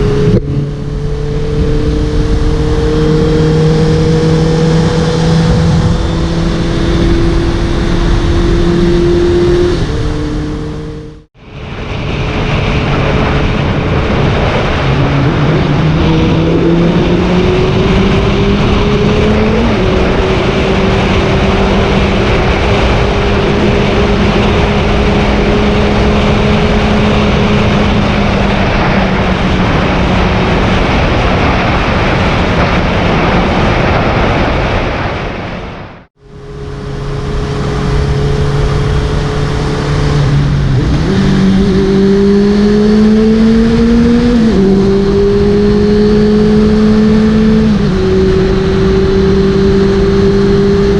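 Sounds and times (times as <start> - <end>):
motorcycle engine accelerating: 0.0 - 11.9, 12.5 - 50.9
wind rushing over microphone: 0.0 - 50.9.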